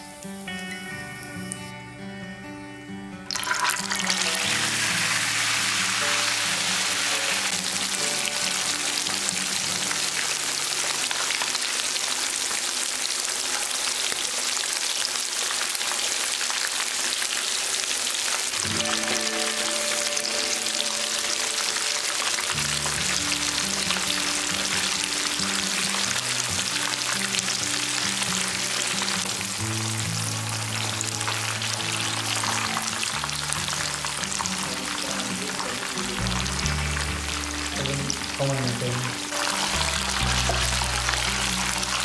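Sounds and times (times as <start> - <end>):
hot oil sizzling: 0.0 - 1.7, 3.3 - 42.0
background music: 0.0 - 11.5, 18.5 - 42.0.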